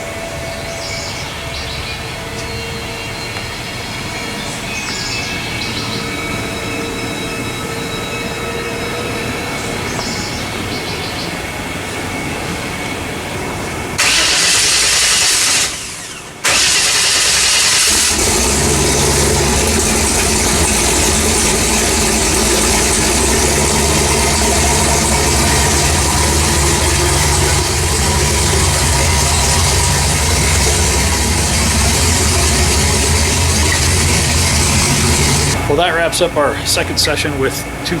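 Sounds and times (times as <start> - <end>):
car engine idling: 12.1 - 38.0
loud rushing noise: 14.0 - 36.8.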